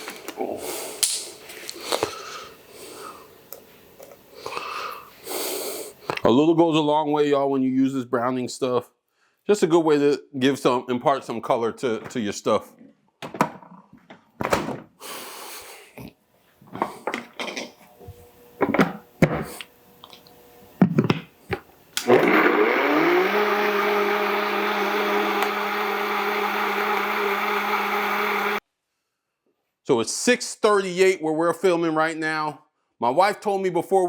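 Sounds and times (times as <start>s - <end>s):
blender motor running: 21.9s - 28.6s.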